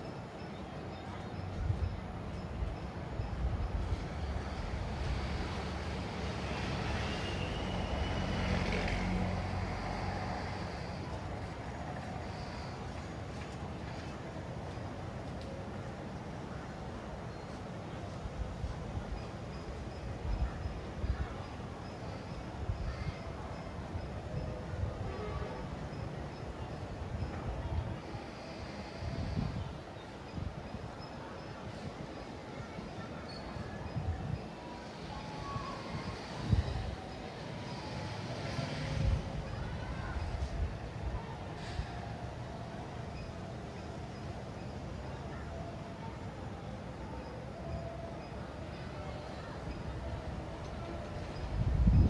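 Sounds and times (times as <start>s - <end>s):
traffic rumble and hiss: 0.0s - 52.0s
vehicle passing: 5.0s - 11.6s
wind buffeting microphone: 26.9s - 31.0s, 33.8s - 42.6s, 49.4s - 52.0s.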